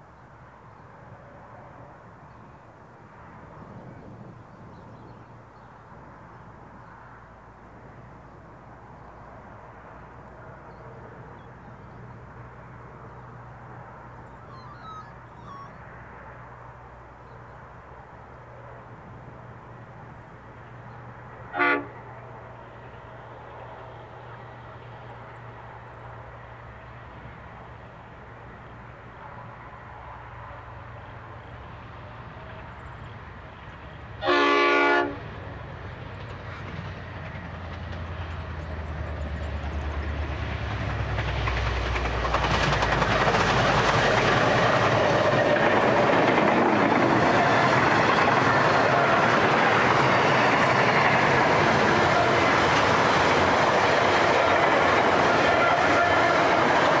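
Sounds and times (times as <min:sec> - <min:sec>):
diesel locomotive engines droning: 0:00.0 - 0:57.0
train horn: 0:21.5 - 0:22.1, 0:34.2 - 0:35.3, 0:54.3 - 0:57.0.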